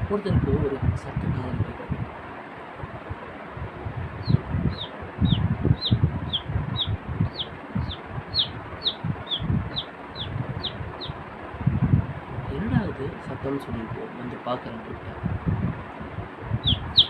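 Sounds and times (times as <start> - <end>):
low muffled bumps: 2.8 - 12.8
man mimicking chick peeping: 16.6 - 17.0.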